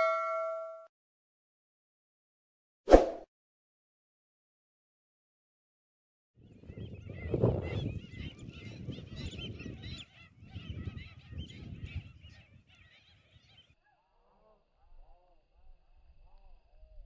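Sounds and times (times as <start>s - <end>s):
wind rumble on microphone: 6.4s - 12.8s, 14.8s - 17.0s.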